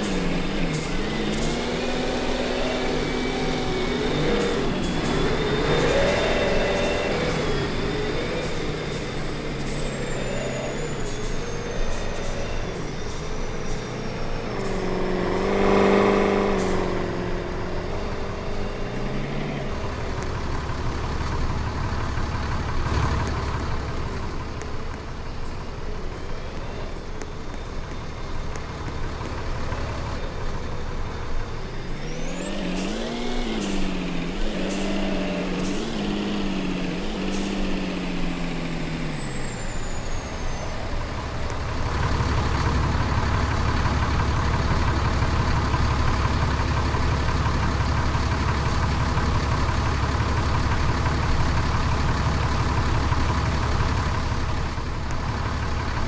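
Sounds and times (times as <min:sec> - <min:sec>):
thin high whine: 0:00.0 - 0:20.6
truck engine running: 0:00.0 - 0:56.0.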